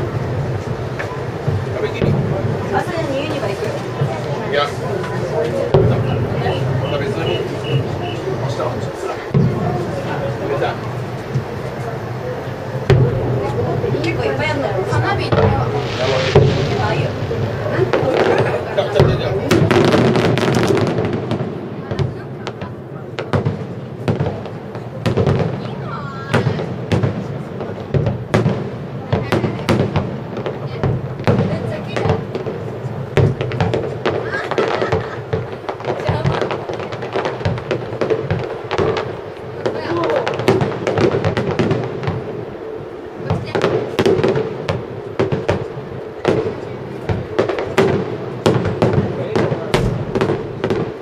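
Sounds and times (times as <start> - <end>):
constant fireworks rumble: 0.0 - 51.0
firework bangs: 0.0 - 51.0.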